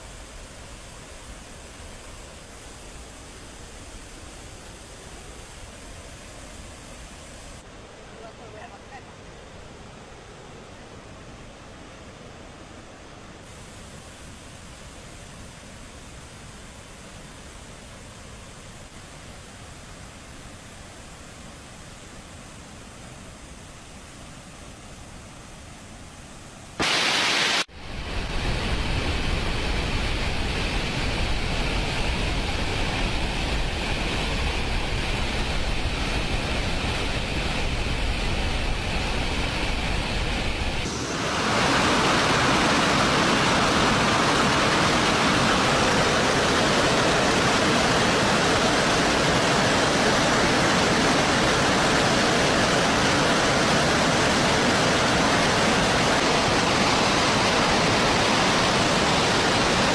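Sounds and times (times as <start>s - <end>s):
water rushing through spillway: 26.6s - 59.9s.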